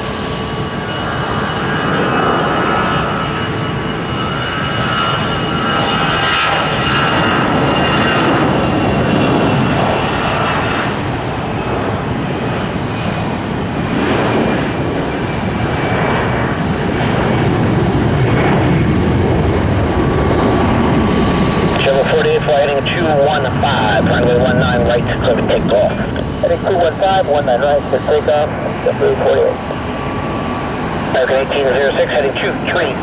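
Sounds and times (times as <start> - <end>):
high engine whine: 0.0 - 33.0
jet engines rushing: 0.0 - 33.0.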